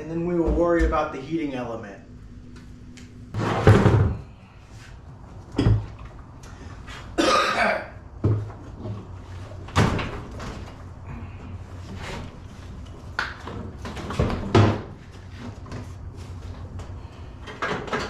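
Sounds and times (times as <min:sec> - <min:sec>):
knocks and thumps from handling parts: 0:03.4 - 0:04.3.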